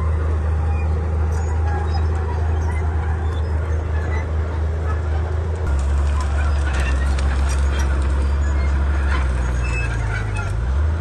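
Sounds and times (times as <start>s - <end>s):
bulldozer diesel engine droning: 0.0s - 11.0s
scattered clicks and cracks: 5.6s - 8.2s.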